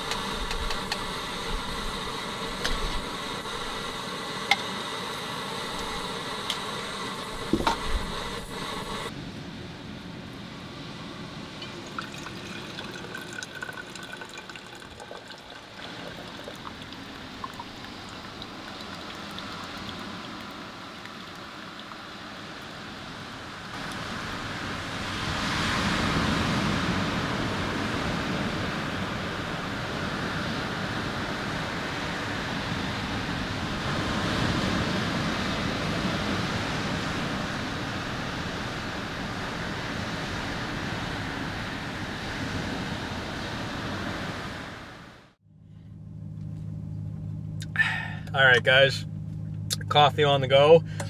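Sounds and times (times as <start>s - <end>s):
surf washing onto beach: 0.0s - 9.1s, 22.5s - 45.1s
water pouring into dripper: 11.6s - 22.8s.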